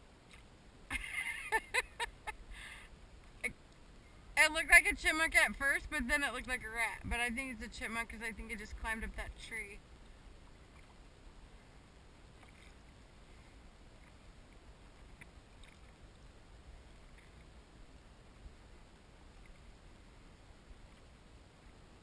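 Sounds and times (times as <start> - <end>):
water lapping around a kayak: 9.8 - 22.0.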